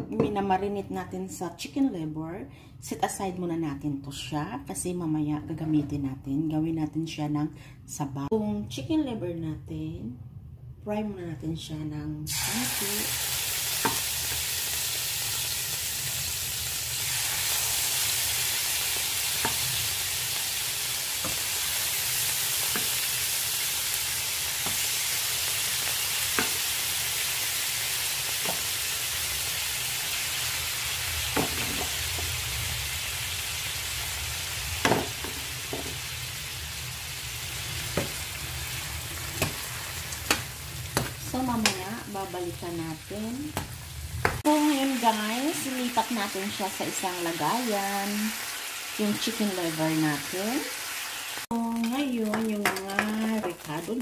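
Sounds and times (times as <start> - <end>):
livers sizzling in hot oil: 12.3 - 54.0.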